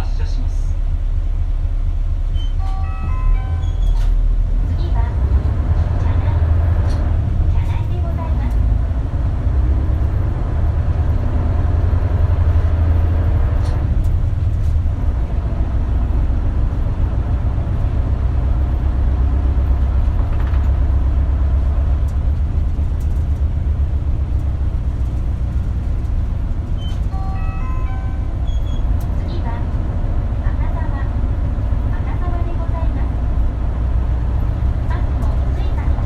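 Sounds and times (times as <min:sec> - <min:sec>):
bus engine drone: 0:00.0 - 0:36.0
electronic chime melody: 0:27.2 - 0:28.3.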